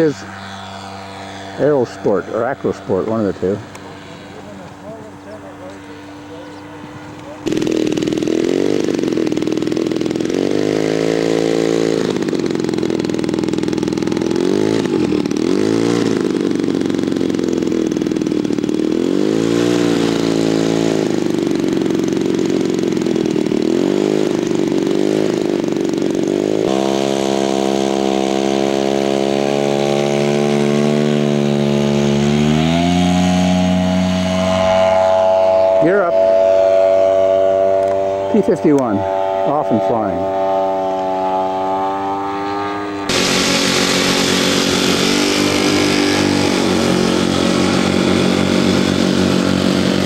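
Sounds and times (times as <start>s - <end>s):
model aircraft engine: 0.0s - 50.0s.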